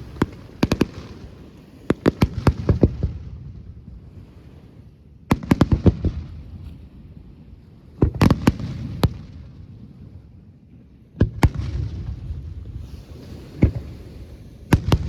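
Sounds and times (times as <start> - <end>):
firework bursts with rumbling echo: 11.2 - 15.0.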